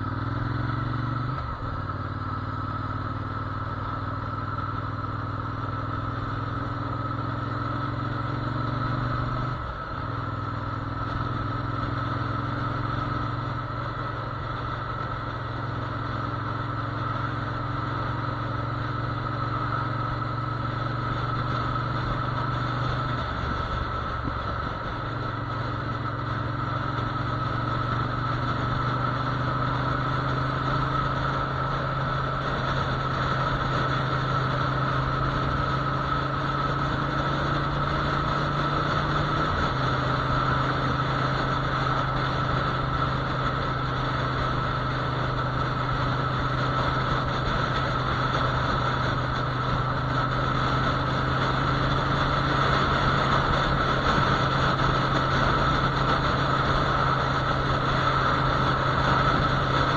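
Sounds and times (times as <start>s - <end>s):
motorcycle engine droning: 0.0s - 59.9s
wind noise: 30.7s - 59.9s.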